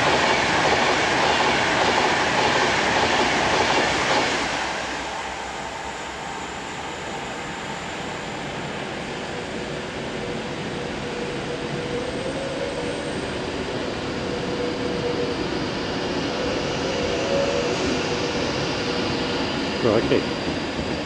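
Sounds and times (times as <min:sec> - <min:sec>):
faint train whine: 0:00.0 - 0:21.0
train rushing rail noise: 0:00.0 - 0:21.0.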